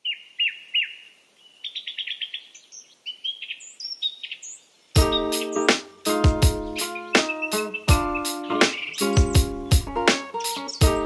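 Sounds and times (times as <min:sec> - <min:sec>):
birds chirping: 0:00.0 - 0:11.0
keyboard chords with low beat: 0:05.0 - 0:11.0.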